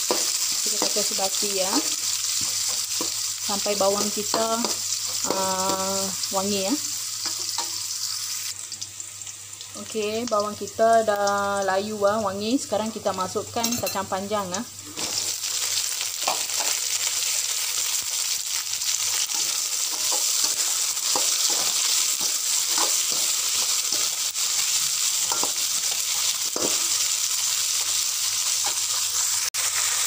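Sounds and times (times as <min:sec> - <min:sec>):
beans sizzling in hot oil: 0:00.0 - 0:30.0
metal spatula scraping wok: 0:19.2 - 0:24.2.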